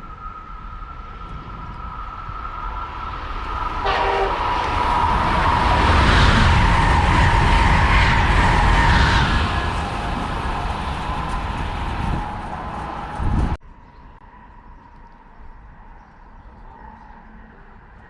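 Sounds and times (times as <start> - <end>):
train passing at speed: 0.0 - 13.6
train horn: 3.6 - 5.6.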